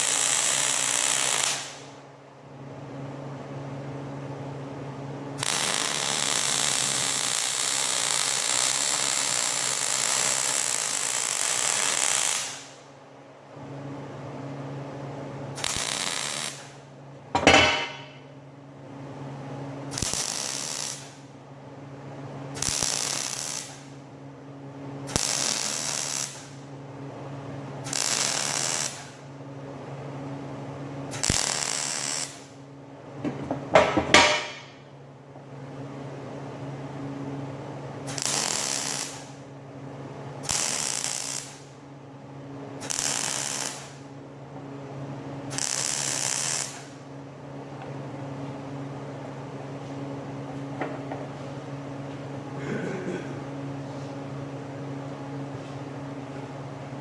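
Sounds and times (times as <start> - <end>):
arc welder crackling: 0.0 - 1.9, 5.4 - 12.8, 15.6 - 16.8, 19.9 - 21.3, 22.5 - 24.0, 25.1 - 26.6, 27.8 - 29.2, 31.1 - 32.5, 33.2 - 34.9, 38.0 - 39.4, 40.4 - 41.8, 42.8 - 44.1, 45.5 - 47.0
steady machine hum: 16.9 - 19.8, 32.7 - 38.0, 47.2 - 57.0.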